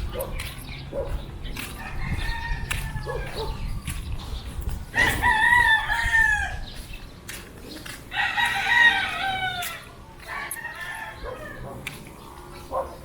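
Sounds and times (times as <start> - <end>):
rooster crowing: 5.0 - 6.6, 8.1 - 11.7.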